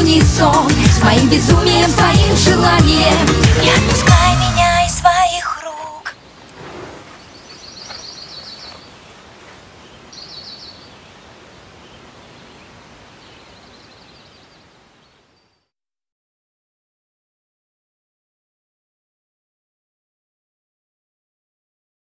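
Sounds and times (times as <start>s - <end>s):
soft steady hiss: 5.2s - 15.7s
small bird chirping: 6.1s - 15.7s.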